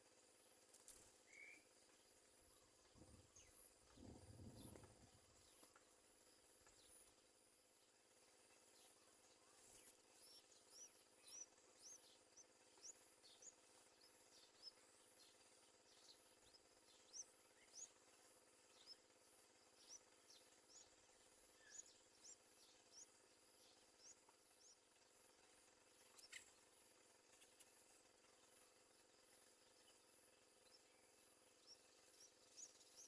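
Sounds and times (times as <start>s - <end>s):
bird chirping: 8.5s - 28.6s, 29.4s - 33.0s.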